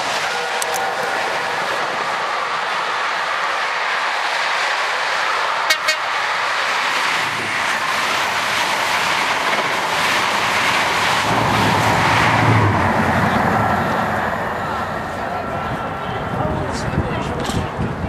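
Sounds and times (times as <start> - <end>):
trains passing at speed: 0.0 - 18.0
train horn toots: 0.2 - 1.4, 5.7 - 6.2
wheels clickety-clack: 6.6 - 18.0.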